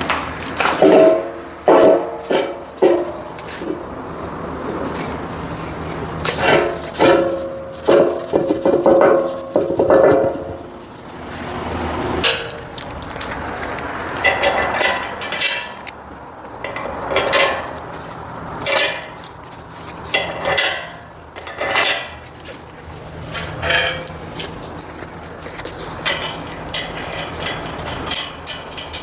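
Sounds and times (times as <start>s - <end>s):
steel parts clanking: 0.4s - 3.8s, 6.3s - 10.6s, 12.2s - 17.9s, 18.6s - 22.3s, 23.2s - 29.0s.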